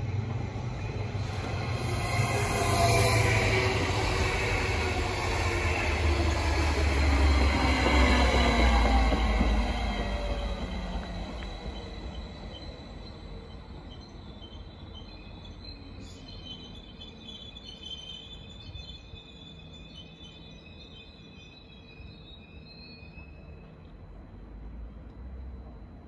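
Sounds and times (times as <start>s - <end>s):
low train rumble: 0.0s - 26.0s.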